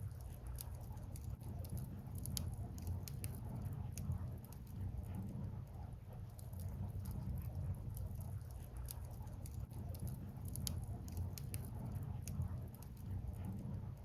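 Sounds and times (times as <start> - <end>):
firewood crackling and popping: 0.0 - 14.0
low fire rumble: 0.0 - 14.0.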